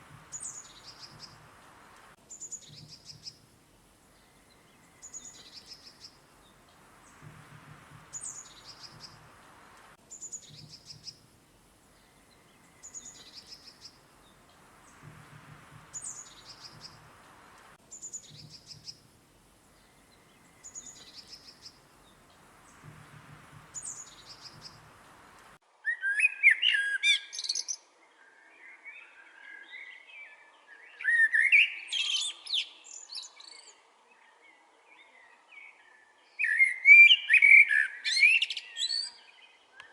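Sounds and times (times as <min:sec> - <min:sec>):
high chirping bird call: 0:00.0 - 0:03.5, 0:04.1 - 0:27.7
varied birdsong: 0:00.0 - 0:39.9.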